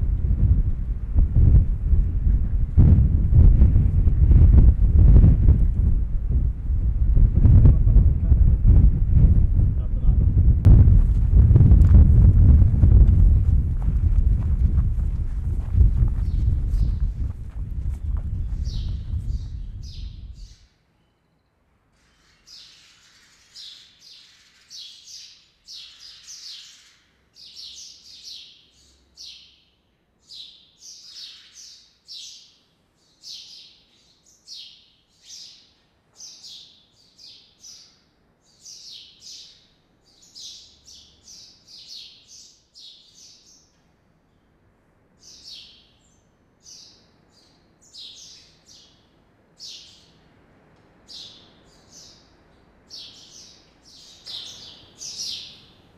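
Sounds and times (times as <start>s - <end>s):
small birds chirping: 12.3s - 44.6s, 45.2s - 50.3s, 51.0s - 55.9s.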